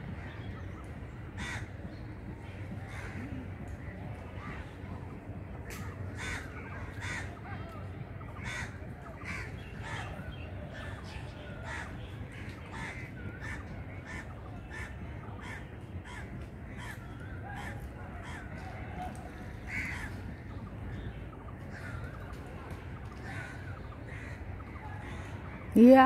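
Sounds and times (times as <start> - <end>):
steady low rumble: 0.0 - 25.7
harsh bird calls: 8.2 - 22.3.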